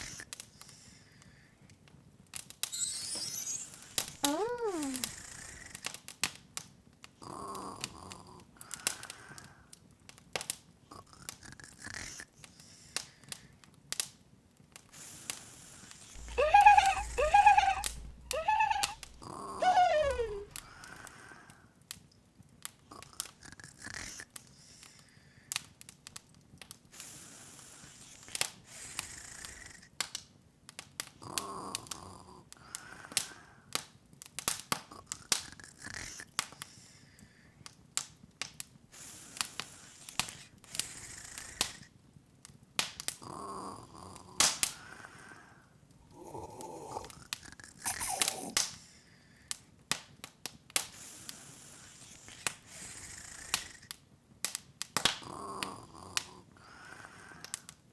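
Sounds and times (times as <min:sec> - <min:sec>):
short squeaky vocal sounds: 0:02.6 - 0:05.2, 0:16.2 - 0:20.9, 0:47.9 - 0:48.6
fireplace crackling and popping: 0:41.6 - 0:43.3, 0:47.2 - 0:48.8, 0:49.5 - 0:57.8.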